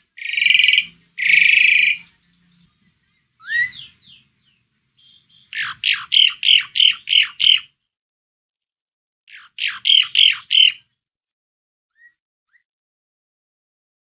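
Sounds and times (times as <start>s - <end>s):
starling calling loud notes: 0.0s - 7.7s, 9.3s - 10.8s.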